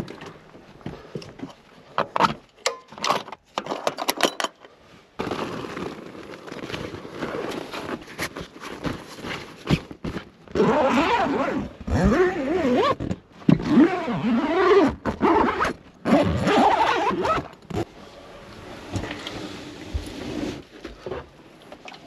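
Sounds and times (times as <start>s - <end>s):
camper creaking and squealing: 10.5s - 17.9s.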